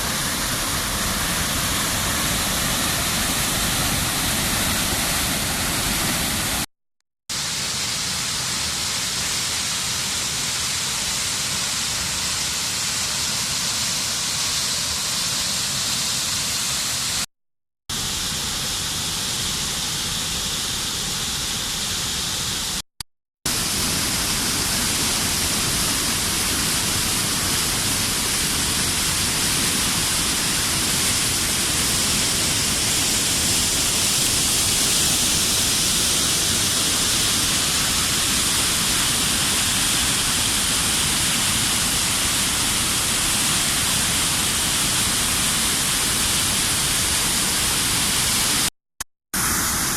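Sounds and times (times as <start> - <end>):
waterfall rushing: 0.0 - 6.7, 23.5 - 48.5.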